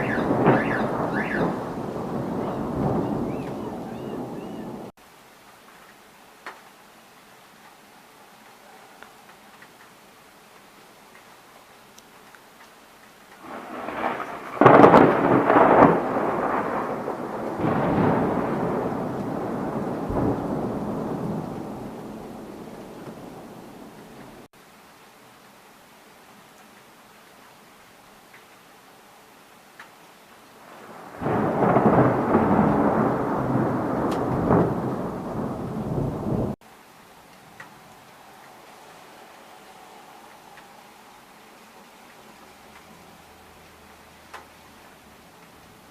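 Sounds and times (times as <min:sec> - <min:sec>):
thunder rumbling and clapping: 0:00.0 - 0:04.9, 0:13.4 - 0:24.5, 0:30.9 - 0:36.6
faint rain: 0:00.0 - 0:45.9.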